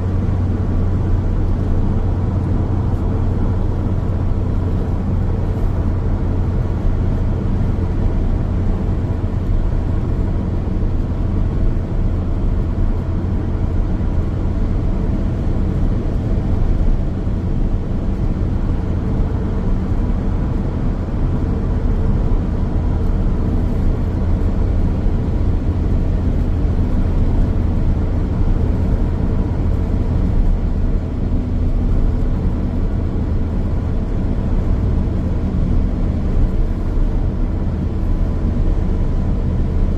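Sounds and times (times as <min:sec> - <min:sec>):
car engine drone: 0:00.0 - 0:39.9
tyres rumbling on road: 0:00.0 - 0:39.9.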